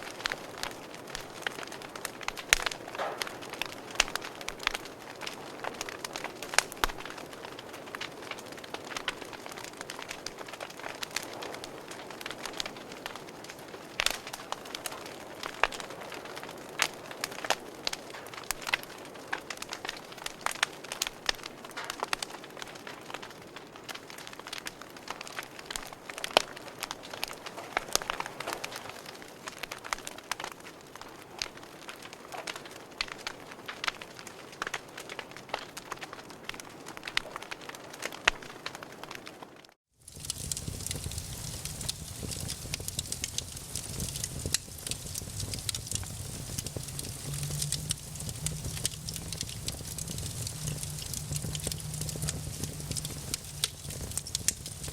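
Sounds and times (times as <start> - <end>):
wood fire crackling: 0.0 - 54.9
low rumble of flame: 40.0 - 54.9.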